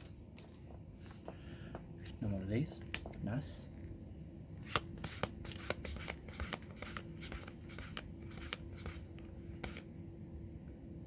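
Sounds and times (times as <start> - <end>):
faint steady hum: 0.0 - 11.0
cards clicking and sliding: 4.6 - 9.9.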